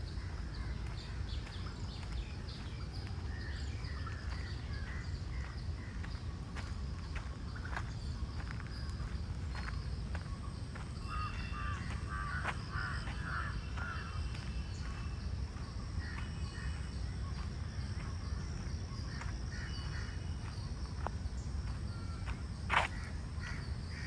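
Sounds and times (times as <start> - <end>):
high insect drone: 0.0 - 24.0
crows cawing: 11.0 - 14.3.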